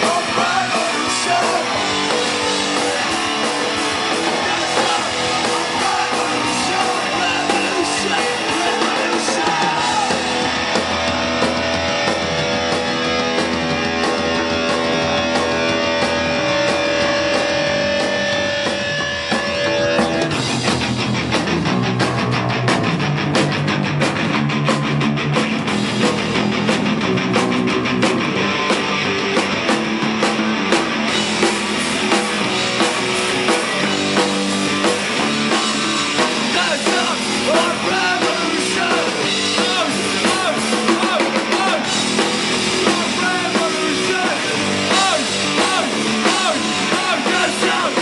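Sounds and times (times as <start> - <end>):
rock band playing: 0.0 - 48.0.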